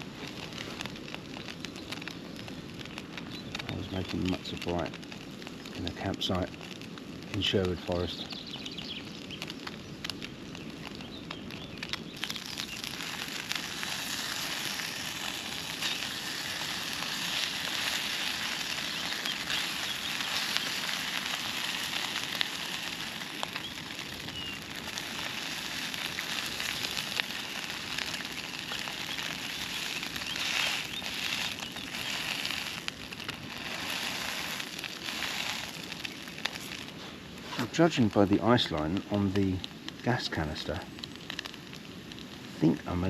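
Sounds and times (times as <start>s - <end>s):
food sizzling in a pan: 12.0s - 37.6s.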